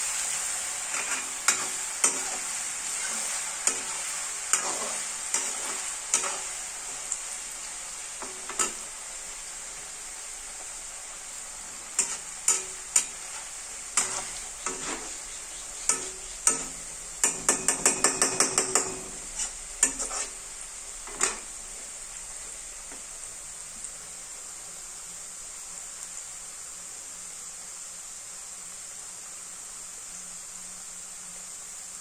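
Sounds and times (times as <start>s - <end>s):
potato sizzling in oil: 0.0s - 32.0s
metal skimmer scraping a pan: 0.8s - 7.0s, 11.7s - 20.4s.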